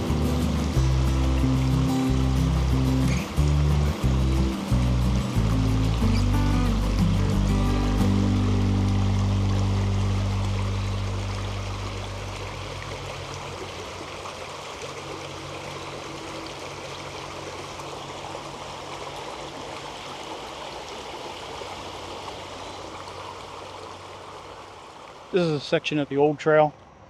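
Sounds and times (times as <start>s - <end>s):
low hum: 0.0s - 14.4s
creek flowing: 0.0s - 27.0s.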